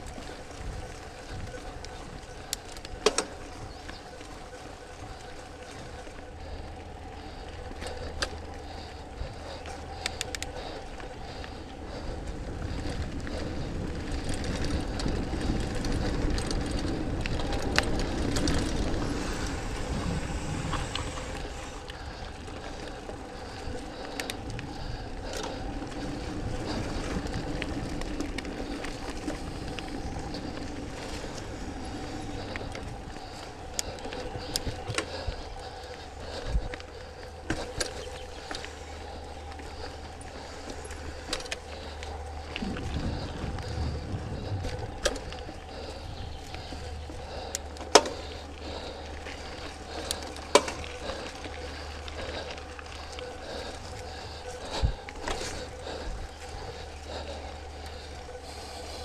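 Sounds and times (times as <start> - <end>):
mountain bike rolling and rattling: 0.0 - 59.0
sharp clicks from bumps: 0.0 - 59.0
wind rumble on microphone: 0.0 - 59.0.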